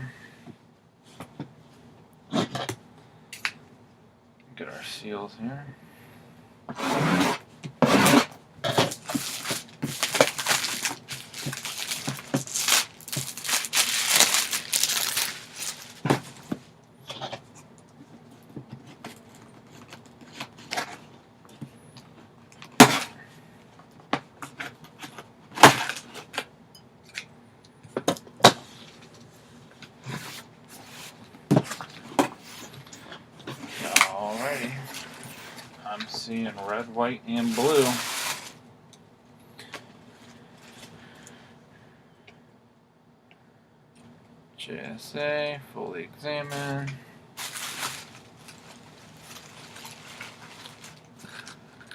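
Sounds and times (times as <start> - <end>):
plastic and cardboard rustling: 6.8 - 17.5, 28.4 - 38.6, 46.4 - 51.9
packaging seals tearing: 8.0 - 16.5.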